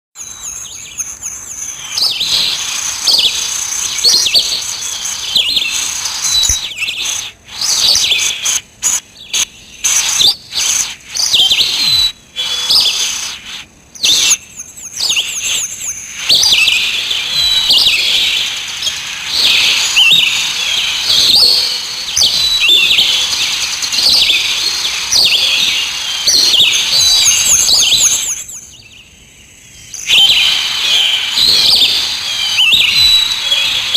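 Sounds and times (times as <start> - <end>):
songbirds chirping: 0.2 - 33.9.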